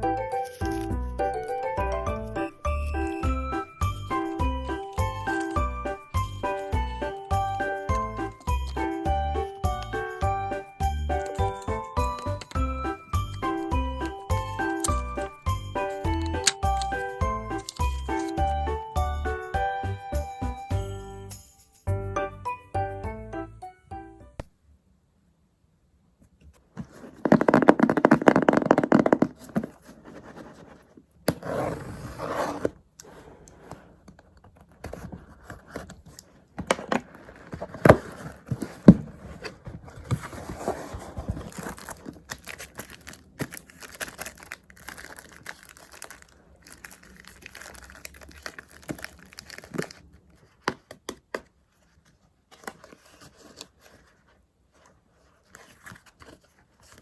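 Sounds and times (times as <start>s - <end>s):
paper crinkling and rustling: 0.3s - 1.0s, 3.8s - 8.9s, 14.0s - 18.5s, 33.6s - 51.0s, 51.6s - 57.0s
stickers peeling: 0.3s - 1.6s, 3.8s - 5.7s, 11.2s - 18.6s.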